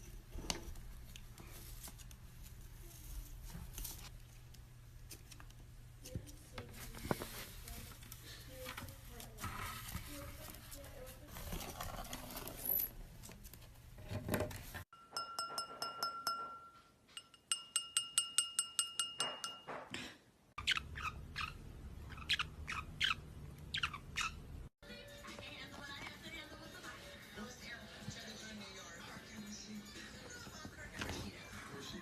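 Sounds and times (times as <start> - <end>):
ringing chime-like tone: 15.0 - 19.7
bird chirping: 20.6 - 24.5.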